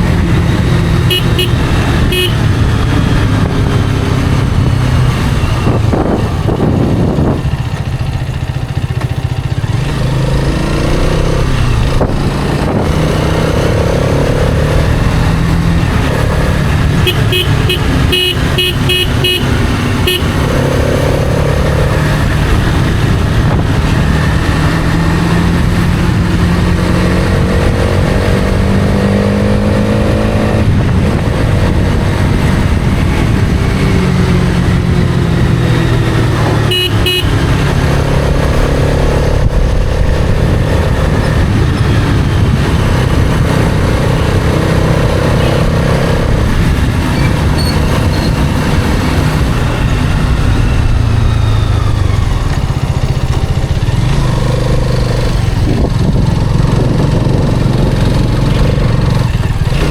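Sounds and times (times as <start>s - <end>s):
motorcycle engine revving: 0.0s - 59.9s
short horn beeps: 1.0s - 2.5s, 17.0s - 20.4s, 36.7s - 37.4s.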